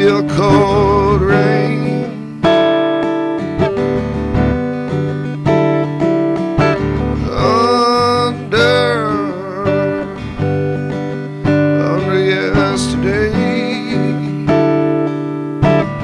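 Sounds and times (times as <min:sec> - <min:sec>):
person singing wordless line: 0:00.0 - 0:03.4, 0:06.6 - 0:15.9
acoustic guitar strumming: 0:00.0 - 0:16.0.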